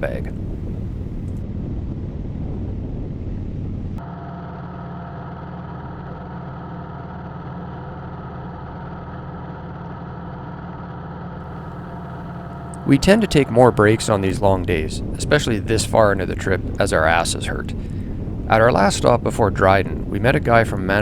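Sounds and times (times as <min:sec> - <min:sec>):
wind rush: 0:00.0 - 0:04.0, 0:11.6 - 0:21.0.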